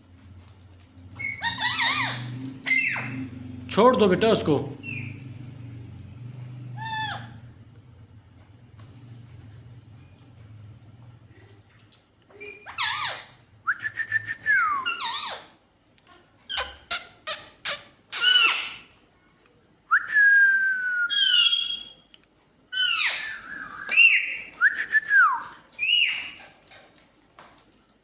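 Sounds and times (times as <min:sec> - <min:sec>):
parrot whistling and calling: 0:01.2 - 0:03.2, 0:04.8 - 0:05.2, 0:12.4 - 0:15.5, 0:16.5 - 0:18.8, 0:21.0 - 0:22.0, 0:22.7 - 0:24.6, 0:25.3 - 0:26.4.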